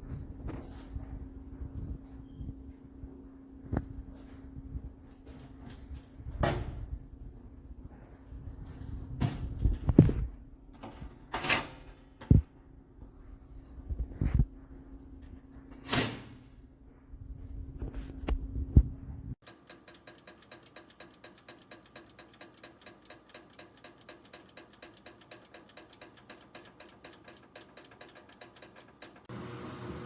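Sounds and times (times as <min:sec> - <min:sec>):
dial timer ticking: 0:19.4 - 0:29.3.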